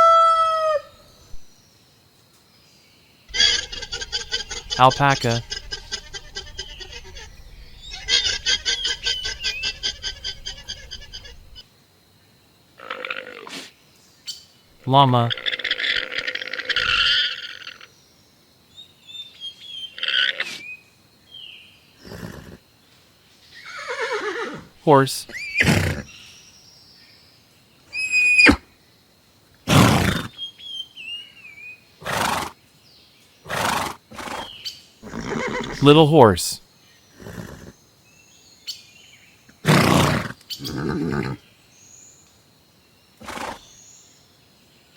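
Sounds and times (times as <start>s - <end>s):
alpaca calling: 3.3s - 11.6s, 14.9s - 17.4s, 35.0s - 36.1s
horse snorting: 3.3s - 11.6s, 16.7s - 17.2s, 25.6s - 26.1s, 29.7s - 30.3s, 32.0s - 32.5s, 33.5s - 35.8s, 37.2s - 37.7s, 39.6s - 41.4s, 43.2s - 43.7s
horse whinny: 3.3s - 11.6s, 15.3s - 17.7s, 22.0s - 22.6s, 23.6s - 26.1s, 28.0s - 28.6s, 29.7s - 30.4s, 32.0s - 32.6s, 33.5s - 35.8s, 37.2s - 37.8s, 39.6s - 41.4s, 43.2s - 43.7s.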